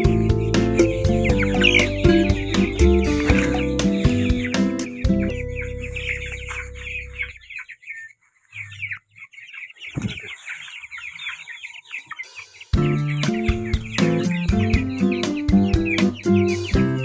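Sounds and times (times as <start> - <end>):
background music: 0.0 - 7.4, 12.6 - 17.0
chicks peeping: 0.0 - 17.0.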